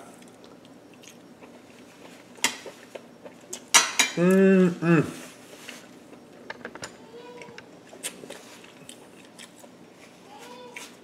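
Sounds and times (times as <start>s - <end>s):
person chewing meat: 0.0s - 3.7s, 7.9s - 11.0s
person humming mm: 4.2s - 5.2s.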